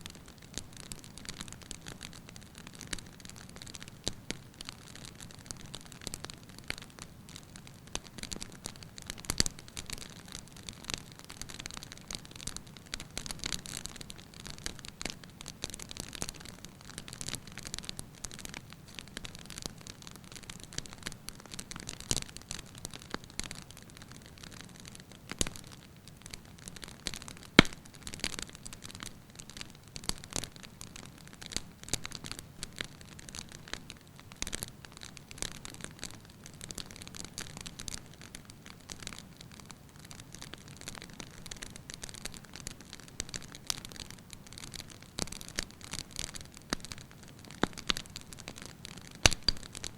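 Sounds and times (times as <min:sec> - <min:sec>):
soft hiss: 0:00.0 - 0:36.5
wood fire crackling and popping: 0:00.0 - 0:49.9.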